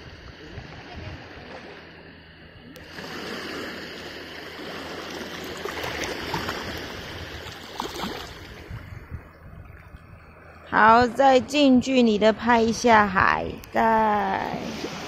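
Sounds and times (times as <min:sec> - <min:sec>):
seawater lapping on rocks: 0:02.8 - 0:11.2.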